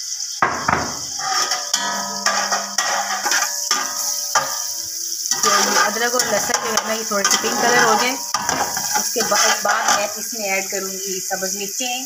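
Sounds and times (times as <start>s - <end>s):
paste sizzling in hot fat: 0.0s - 12.0s
metal pot ringing: 0.4s - 10.1s
metal spoon scraping a pot: 0.7s - 10.2s.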